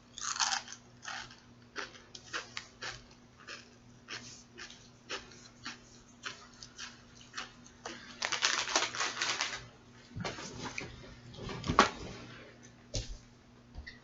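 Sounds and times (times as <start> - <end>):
rustling or crinkling: 7.9 - 12.3.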